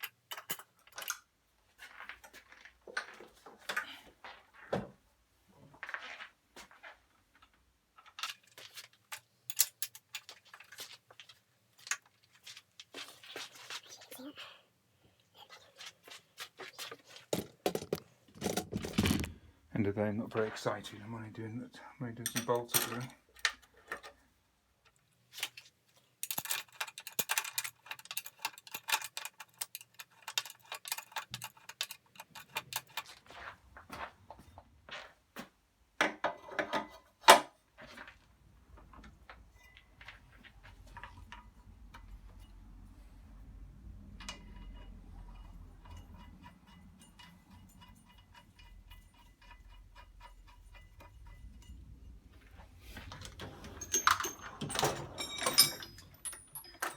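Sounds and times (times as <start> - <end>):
metallic clinks: 44.0 - 56.9.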